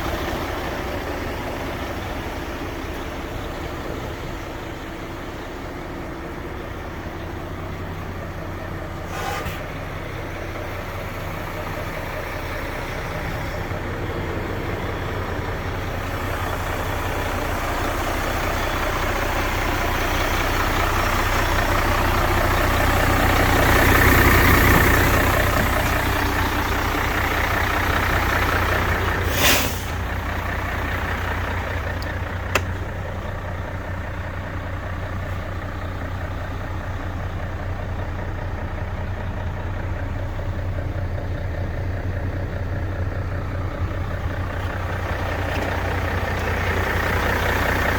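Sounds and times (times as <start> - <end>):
truck diesel engine running: 0.0 - 47.9
air brakes hiss: 9.0 - 9.8, 29.2 - 30.2.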